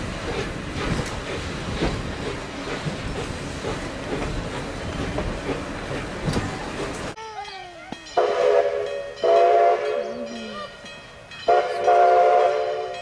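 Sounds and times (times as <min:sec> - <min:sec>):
wheels clicking over rails: 0:00.0 - 0:07.2
train rumbling along track: 0:00.0 - 0:13.0.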